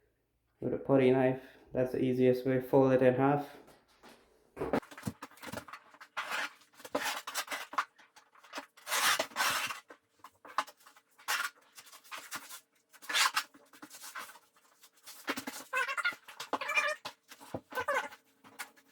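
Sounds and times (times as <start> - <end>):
putty knife scraping fabric: 8.5 - 9.9.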